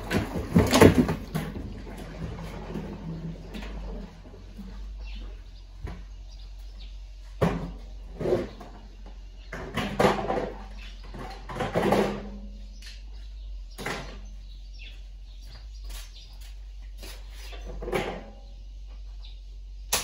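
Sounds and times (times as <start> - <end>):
steady low hum: 0.0 - 20.0
washing machine parts clattering: 9.5 - 12.5.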